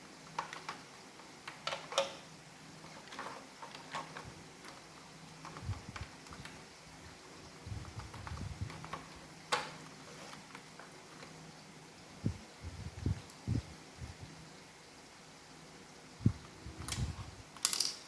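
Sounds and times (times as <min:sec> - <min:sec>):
plastic parts clicking: 0:01.5 - 0:02.2, 0:02.9 - 0:06.6, 0:08.0 - 0:11.3, 0:16.8 - 0:18.0.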